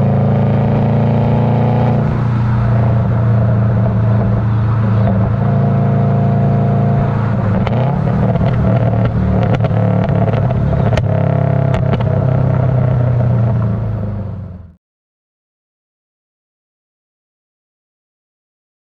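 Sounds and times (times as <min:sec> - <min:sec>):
car engine running: 0:00.0 - 0:14.8
exhaust pops and crackles: 0:03.3 - 0:05.6, 0:06.9 - 0:14.2.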